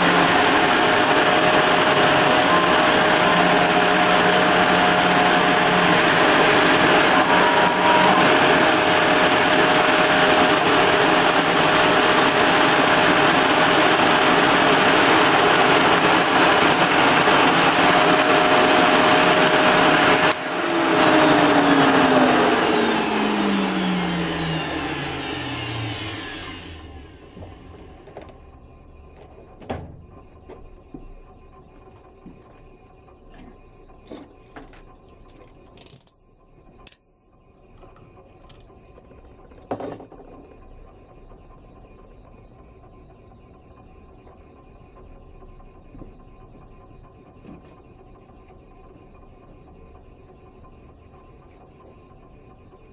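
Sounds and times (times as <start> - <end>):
router spindle whining: 0.0 - 29.6.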